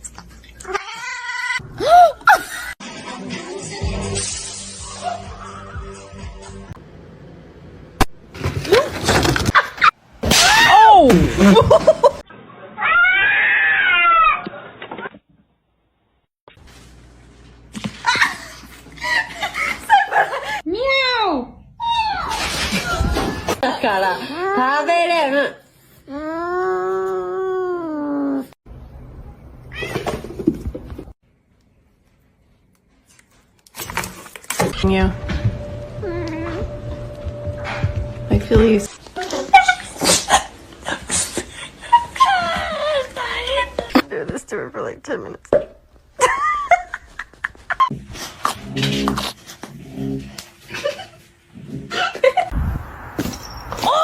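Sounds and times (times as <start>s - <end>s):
cats meowing and yowling: 12.8s - 14.5s.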